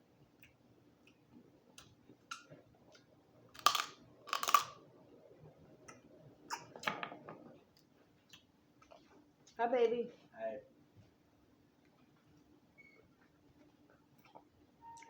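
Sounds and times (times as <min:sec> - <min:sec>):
chewing with small clicks: 0:00.3 - 0:03.1, 0:07.7 - 0:09.6, 0:13.5 - 0:15.0
crab shell cracking: 0:03.6 - 0:04.8.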